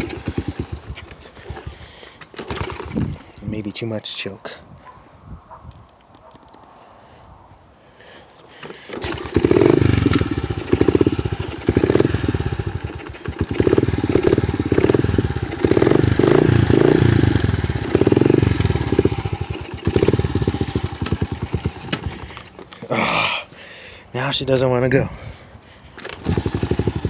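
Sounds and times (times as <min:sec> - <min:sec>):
small motorcycle engine running unevenly: 0:00.0 - 0:03.2, 0:08.6 - 0:23.0, 0:26.0 - 0:27.0.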